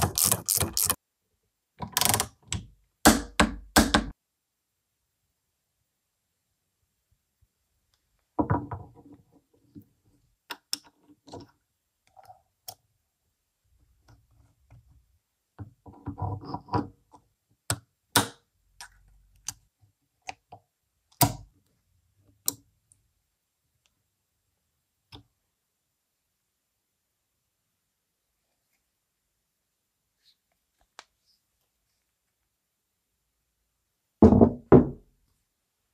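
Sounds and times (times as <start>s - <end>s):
knocks and clicks of tools: 0.0s - 1.0s.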